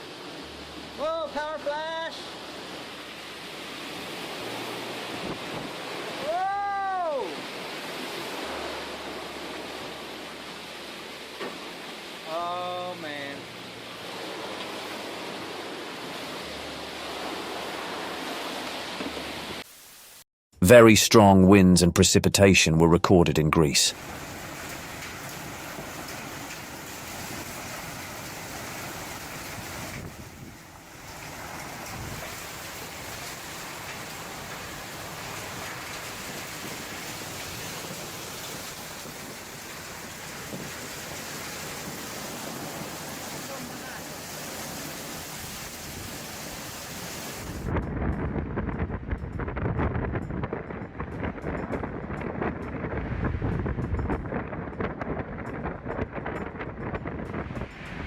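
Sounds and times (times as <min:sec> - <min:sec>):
heavy rain: 0:00.0 - 0:20.2, 0:23.9 - 0:47.7
strong wind: 0:03.4 - 0:10.6, 0:24.0 - 0:58.0
storm wind rushing: 0:24.0 - 0:43.3.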